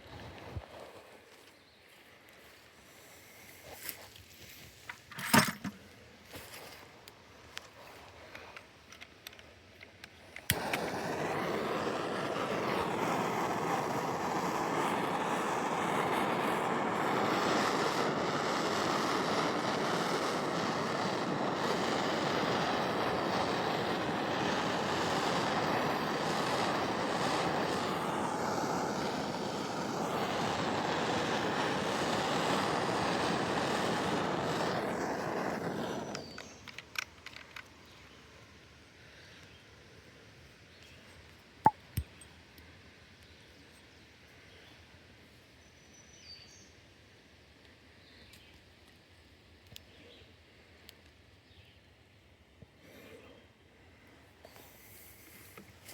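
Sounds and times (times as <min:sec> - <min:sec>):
air hissing into vacuum line: 0:10.4 - 0:36.9, 0:54.4 - 0:55.9.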